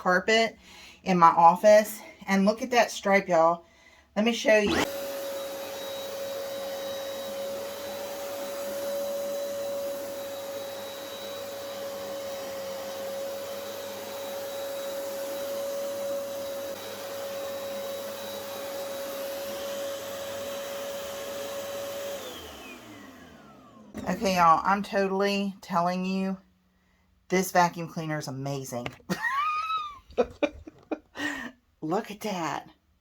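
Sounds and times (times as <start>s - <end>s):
carpet cleaner motor whine: 4.6s - 24.5s.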